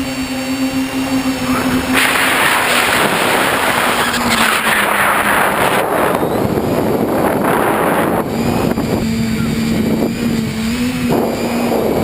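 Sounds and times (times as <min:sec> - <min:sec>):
drone propellers whirring: 0:00.0 - 0:12.0
loud rushing noise: 0:00.8 - 0:09.0.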